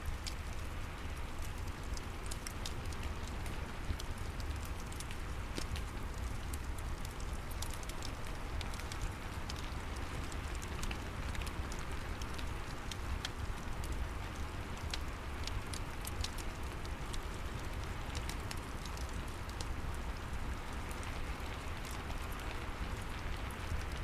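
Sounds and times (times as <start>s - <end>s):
steady rain falling: 0.0s - 24.0s
fireplace crackling: 3.9s - 11.8s.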